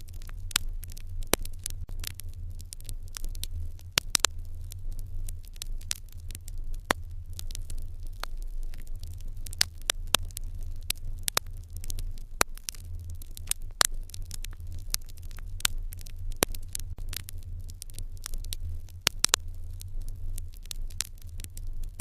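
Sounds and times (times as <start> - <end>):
steady low hum: 0.0 - 22.0
wood fire crackling: 0.0 - 22.0.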